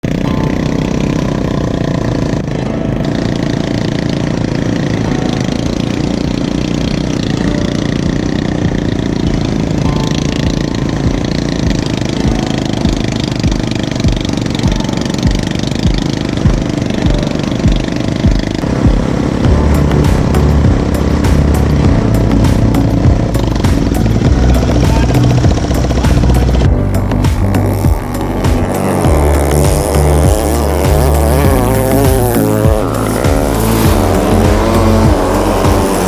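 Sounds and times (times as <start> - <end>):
engine running steadily: 0.0 - 36.0
regular low thump: 8.1 - 36.0.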